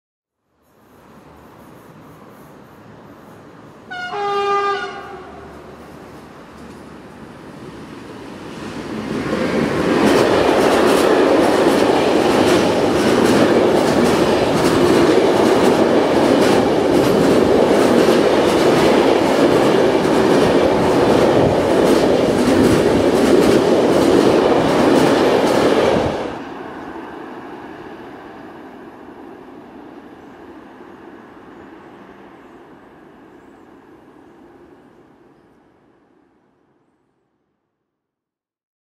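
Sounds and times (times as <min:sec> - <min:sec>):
train wheels rolling on rails: 0:05.1 - 0:35.0
clickety-clack over rail joints: 0:06.5 - 0:06.9, 0:08.6 - 0:26.4.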